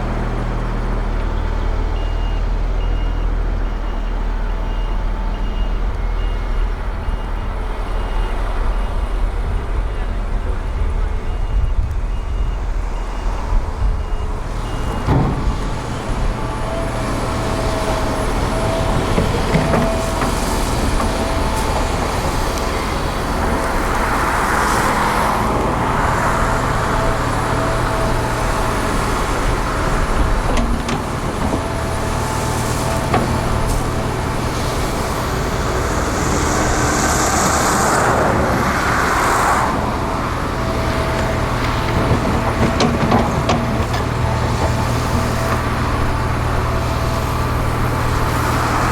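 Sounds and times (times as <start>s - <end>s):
construction machinery engine hum: 0.0s - 48.9s
rushing noise: 31.4s - 42.4s.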